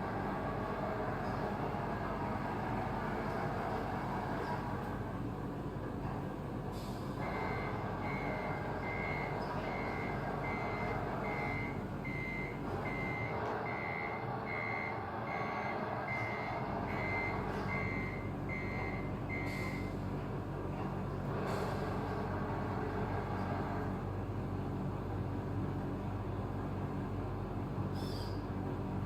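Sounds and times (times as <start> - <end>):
reversing beeper beeps: 7.3 - 19.9.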